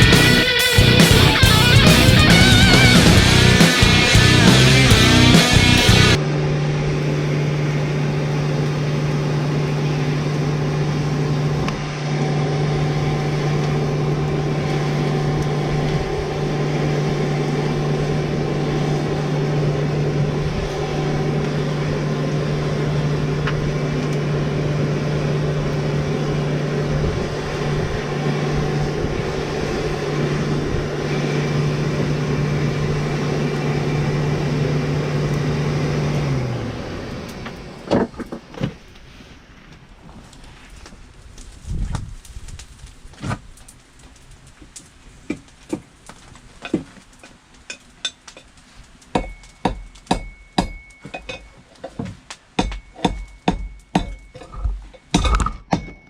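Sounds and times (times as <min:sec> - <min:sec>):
rushing air noise: 0:00.0 - 0:07.5, 0:10.9 - 0:37.9
low machine hum: 0:00.0 - 0:38.6.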